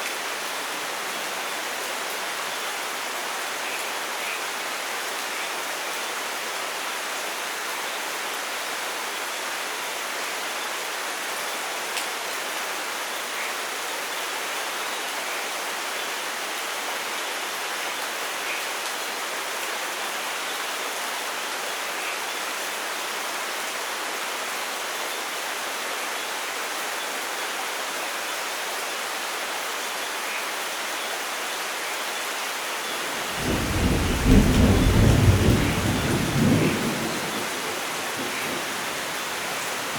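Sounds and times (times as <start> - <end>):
light rain falling: 0.0 - 39.9
deep thunder rumble: 33.3 - 38.8.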